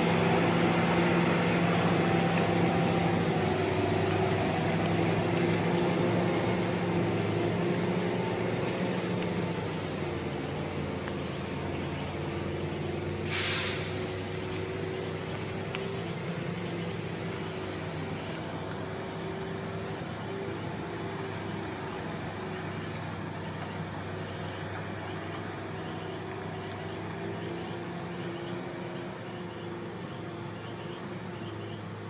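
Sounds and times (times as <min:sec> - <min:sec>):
diesel truck engine running: 0:00.0 - 0:32.0
air hiss: 0:13.1 - 0:14.3.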